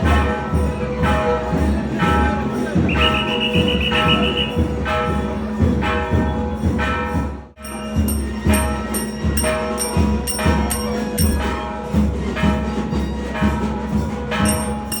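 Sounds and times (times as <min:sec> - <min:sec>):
percussion steady beat: 0:00.0 - 0:15.0
bell-like metallic strikes: 0:04.1 - 0:15.0.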